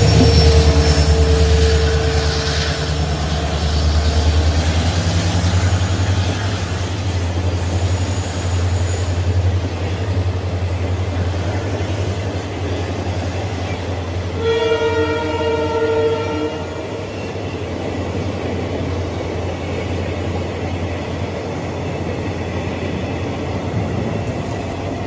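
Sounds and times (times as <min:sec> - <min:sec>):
held tone: 0:00.0 - 0:03.3
train wheels rolling: 0:00.0 - 0:15.9, 0:16.5 - 0:25.0
diesel locomotive engine drone: 0:00.0 - 0:25.0.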